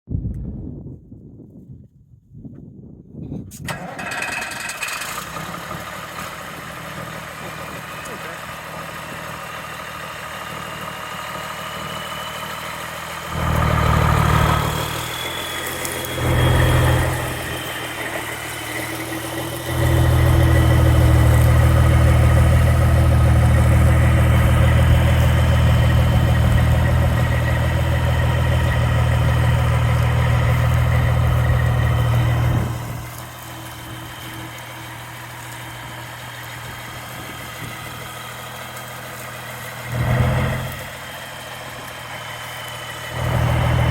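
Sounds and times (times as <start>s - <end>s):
diesel truck engine idling and revving: 3.6s - 43.9s.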